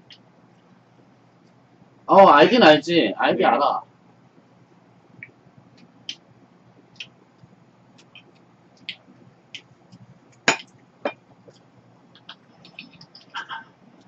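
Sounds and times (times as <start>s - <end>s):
wet chewing clicks and smacks: 6.9s - 9.0s.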